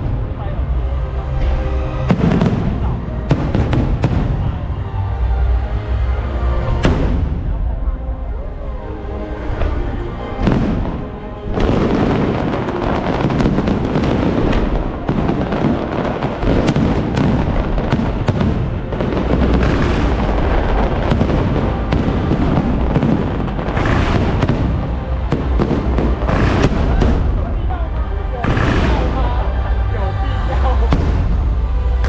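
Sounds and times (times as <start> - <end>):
firework crackling: 1.4 - 4.8, 10.3 - 32.0
firework bursts booming: 1.4 - 5.2, 6.8 - 7.8, 9.4 - 30.0, 30.9 - 32.0.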